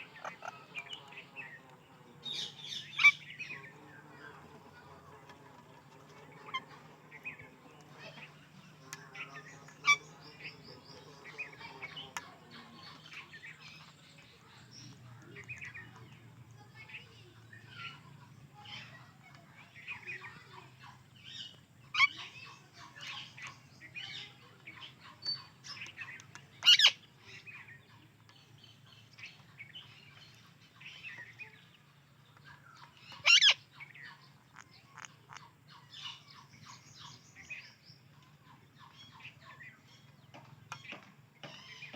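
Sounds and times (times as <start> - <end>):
parakeets chirping and chattering: 0.0 - 41.9
loud shrill parakeet calls: 2.4 - 3.4, 9.8 - 10.1, 26.6 - 27.0, 33.2 - 33.6.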